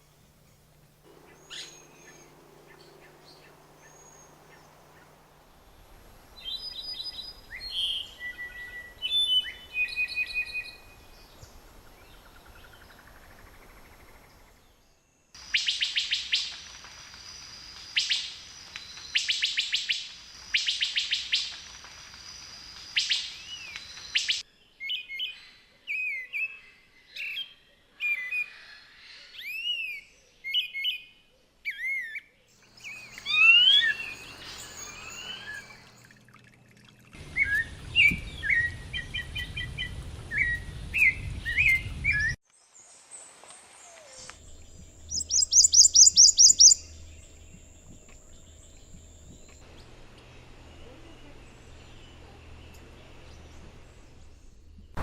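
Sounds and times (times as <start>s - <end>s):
birds calling and singing: 0.0s - 14.9s, 31.7s - 36.2s, 44.1s - 55.0s.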